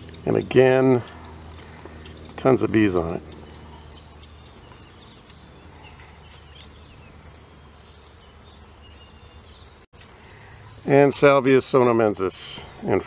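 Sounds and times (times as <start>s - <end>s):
small bird chirping: 0.0s - 11.0s
faint steady hum: 0.0s - 13.0s.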